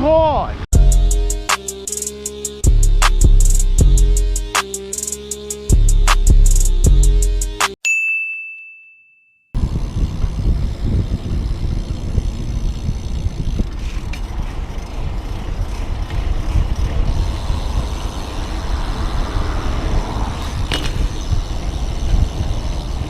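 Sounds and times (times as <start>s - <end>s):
road noise: 0.0s - 7.3s, 9.6s - 23.0s
wind on microphone: 9.6s - 23.0s.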